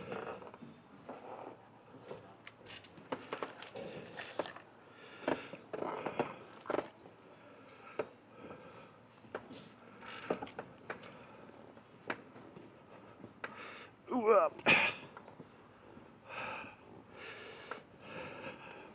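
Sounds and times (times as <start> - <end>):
handling clicks and knocks: 2.4 - 7.0.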